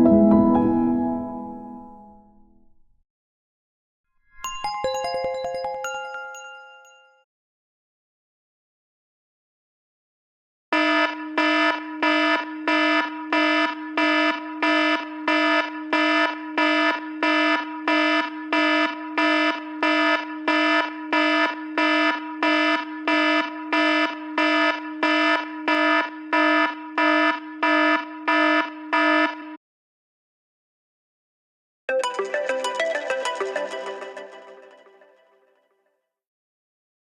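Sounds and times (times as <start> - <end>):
electronic alarm beeps: 10.8 - 29.6.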